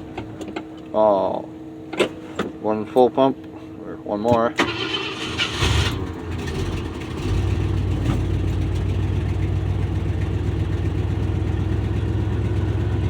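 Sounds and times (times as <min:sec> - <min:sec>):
starter motor cranking: 0:04.6 - 0:07.2
engine fast idle: 0:04.6 - 0:13.0.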